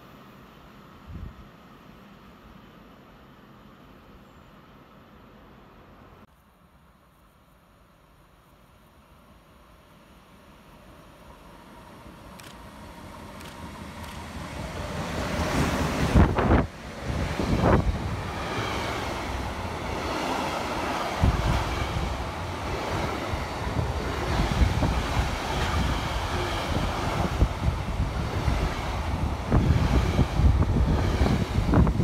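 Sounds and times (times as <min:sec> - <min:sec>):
train wheels rumbling on rail: 0:10.7 - 0:32.0
wind buffeting microphone: 0:14.0 - 0:32.0.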